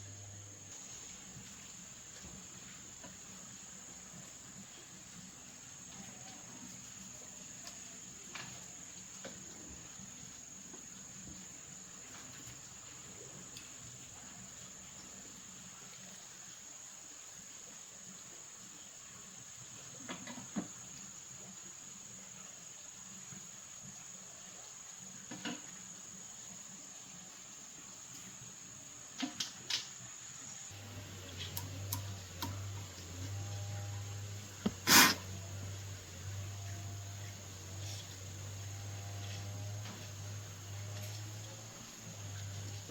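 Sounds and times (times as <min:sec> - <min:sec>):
low electrical hum: 0:00.0 - 0:16.6, 0:30.3 - 0:42.9
light click: 0:30.8 - 0:32.7.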